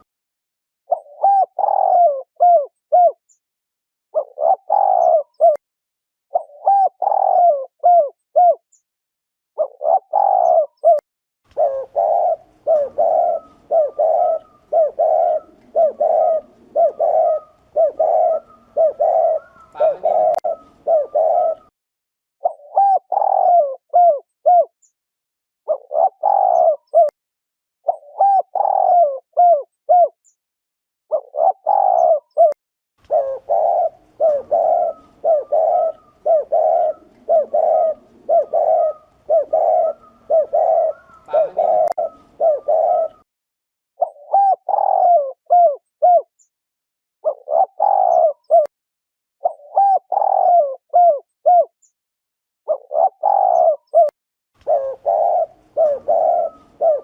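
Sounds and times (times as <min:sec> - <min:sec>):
dove cooing: 0:00.9 - 0:03.2, 0:04.2 - 0:05.6, 0:06.3 - 0:08.6, 0:09.6 - 0:21.7, 0:22.4 - 0:24.7, 0:25.7 - 0:27.1, 0:27.9 - 0:30.2, 0:31.1 - 0:43.2, 0:44.0 - 0:46.3, 0:47.2 - 0:48.7, 0:49.4 - 0:51.7, 0:52.7 - 0:57.0
faint higher bird calls: 0:00.9 - 0:03.2, 0:09.6 - 0:21.7, 0:22.4 - 0:24.7, 0:27.9 - 0:30.1, 0:31.1 - 0:43.3, 0:44.0 - 0:46.2, 0:47.2 - 0:48.7, 0:49.4 - 0:51.6, 0:52.7 - 0:57.0.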